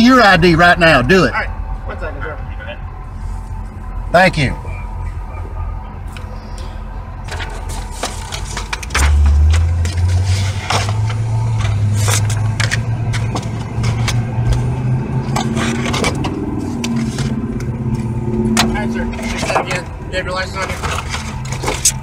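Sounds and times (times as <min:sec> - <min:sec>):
car engine droning: 0:00.0 - 0:22.0
clicks and scraping: 0:06.1 - 0:20.0, 0:20.6 - 0:22.0.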